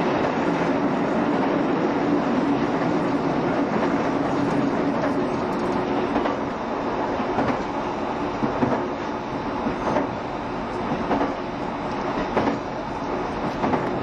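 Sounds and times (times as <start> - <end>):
train wheels rumbling on rail: 0.0 - 14.0
wheels clicking over rail joints: 2.4 - 6.5, 9.6 - 11.4, 12.0 - 14.0.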